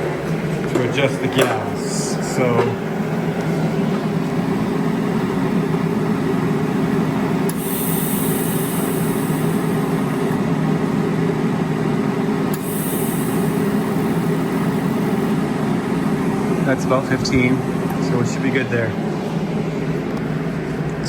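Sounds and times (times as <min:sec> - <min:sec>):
welder machine hum: 0:00.0 - 0:21.0
shielding gas hiss: 0:00.9 - 0:20.0
gas valve click: 0:07.4 - 0:10.4, 0:12.5 - 0:15.2.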